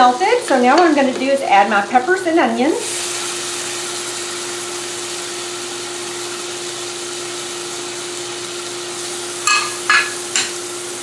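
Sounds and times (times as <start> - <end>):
induction cooktop hum: 0.0 - 11.0
vegetables sizzling in butter: 0.0 - 11.0
utensil clinking against pan: 9.5 - 10.6.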